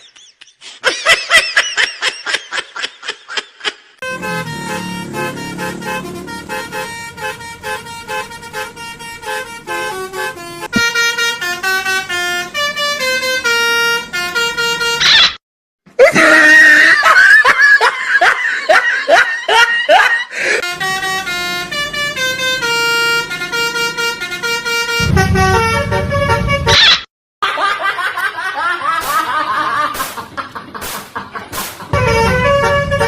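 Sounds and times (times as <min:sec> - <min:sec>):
musical bus horn tune: 0:04.0 - 0:15.1, 0:20.5 - 0:26.8, 0:32.0 - 0:33.0.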